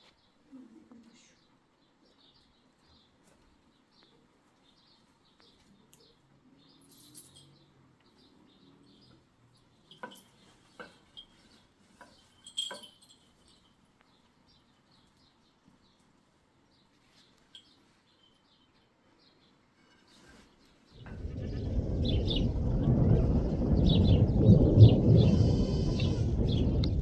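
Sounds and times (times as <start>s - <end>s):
sharp clinks or knocks: 12.4s - 13.6s.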